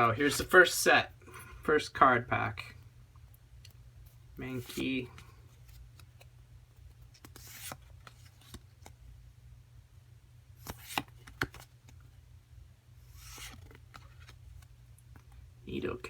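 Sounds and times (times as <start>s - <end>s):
trading cards sliding: 7.1s - 9.0s, 10.6s - 11.7s, 13.1s - 14.4s.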